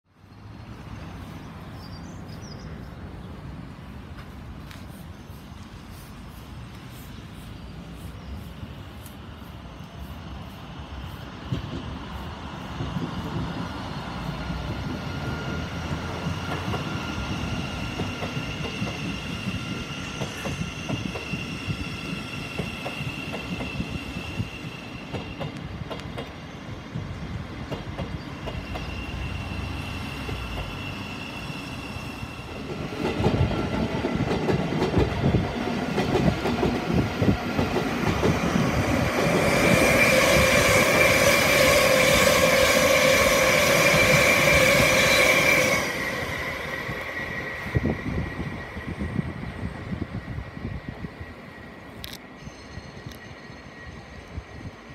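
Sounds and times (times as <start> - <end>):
train wheels rumbling and clattering: 4.0 - 53.4
high-pitched squeal: 28.3 - 32.8, 38.2 - 54.9.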